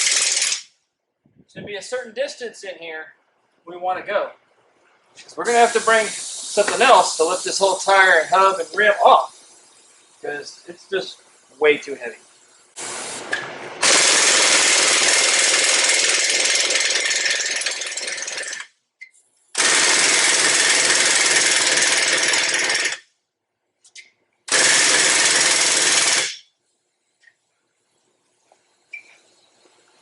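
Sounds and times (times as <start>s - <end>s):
pneumatic impact wrench hammering: 0.0s - 0.7s, 12.8s - 18.7s, 19.6s - 23.0s, 24.5s - 26.5s.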